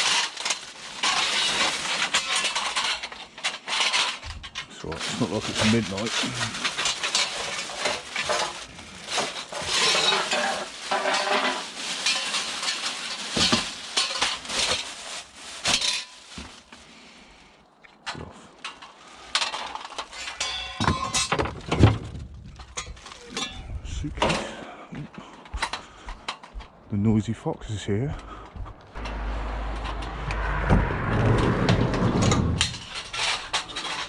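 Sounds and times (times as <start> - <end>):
clinks and knocks: 0.0 - 5.1, 6.1 - 14.8, 18.6 - 24.6, 32.2 - 34.0
clattering: 0.0 - 15.0, 18.6 - 23.6, 29.0 - 34.0
rustling and crackling rubbish: 0.0 - 26.9, 28.0 - 34.0.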